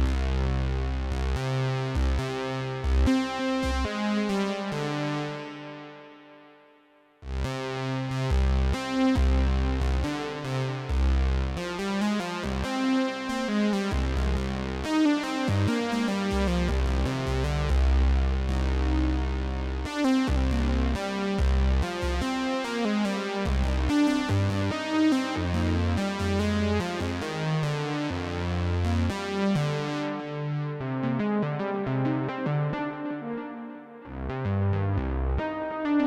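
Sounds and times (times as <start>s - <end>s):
deep bass line: 0.0s - 3.1s, 8.3s - 10.2s, 10.8s - 11.6s, 13.9s - 14.9s, 16.3s - 22.2s, 23.5s - 27.4s, 34.1s - 35.6s.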